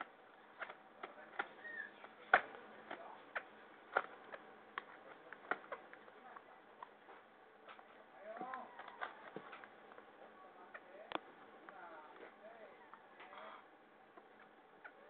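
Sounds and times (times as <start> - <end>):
parrot chick chirp: 1.6 - 2.0.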